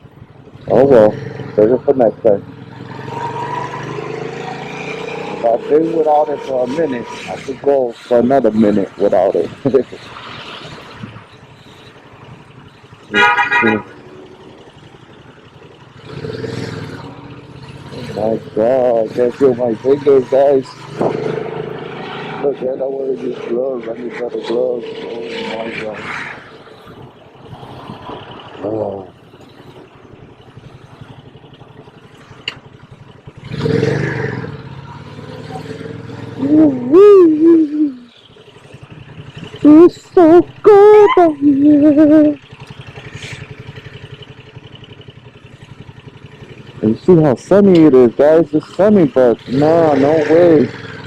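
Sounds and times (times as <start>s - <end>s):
motorcycle road and wind noise: 0.0s - 51.0s
vehicle horn short beeps: 13.1s - 14.0s.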